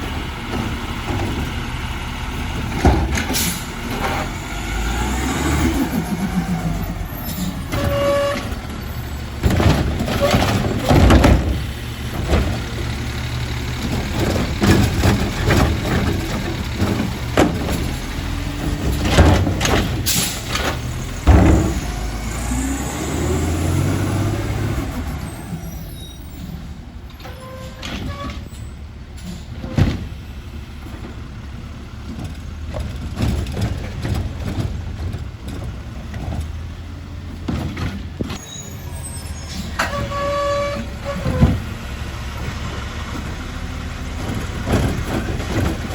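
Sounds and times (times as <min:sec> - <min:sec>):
metal clanks and knocks: 0:00.0 - 0:01.7, 0:02.4 - 0:04.4, 0:07.2 - 0:22.2, 0:31.9 - 0:38.5, 0:39.5 - 0:41.8, 0:44.0 - 0:45.9
truck engine running: 0:00.0 - 0:27.2, 0:27.8 - 0:45.9.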